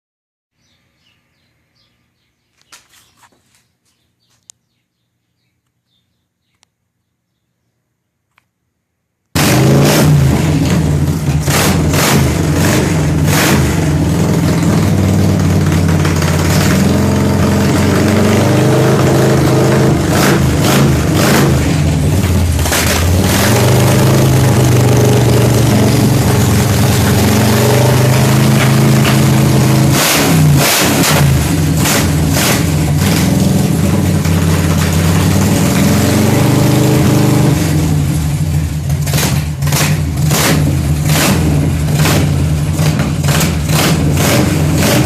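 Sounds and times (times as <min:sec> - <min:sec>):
engine humming: 0:10.2 - 0:45.0.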